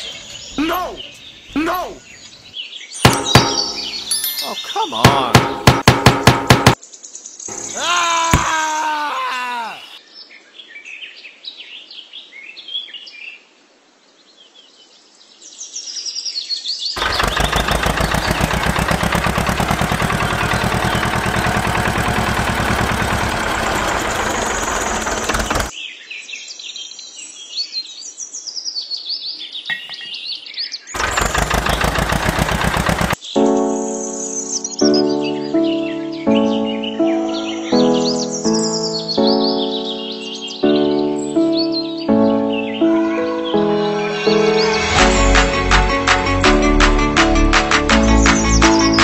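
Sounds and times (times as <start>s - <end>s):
birds chirping: 0.0s - 10.8s, 16.9s - 26.0s, 29.3s - 45.4s
small engine chugging: 17.0s - 25.7s, 31.0s - 33.2s
music: 33.3s - 49.0s.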